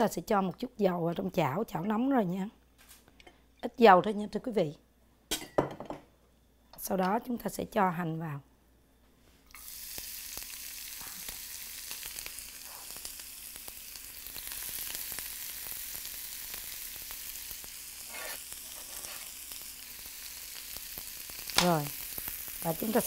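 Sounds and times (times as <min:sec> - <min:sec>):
scallions sizzling in hot oil: 0:09.5 - 0:23.0.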